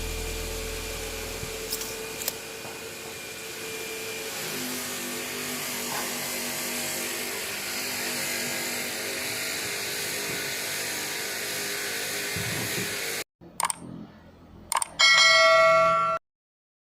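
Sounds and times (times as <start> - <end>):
machine humming: 0.0 - 5.3.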